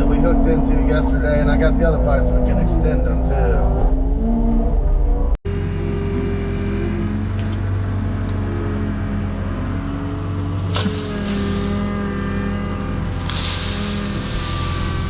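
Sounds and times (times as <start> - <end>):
skid loader diesel engine: 5.5 - 15.0.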